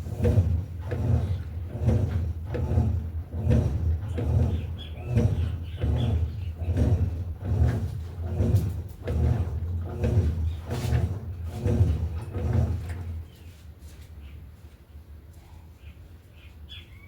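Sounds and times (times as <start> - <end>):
agitator clunking: 0.0 - 13.4
washing machine motor hum: 0.0 - 14.3.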